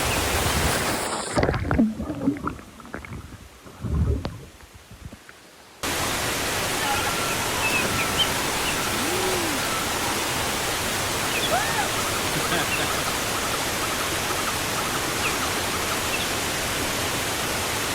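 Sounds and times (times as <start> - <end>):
waterfall rushing: 5.8 - 17.9
faint chirping calls: 6.8 - 10.4, 11.2 - 15.5.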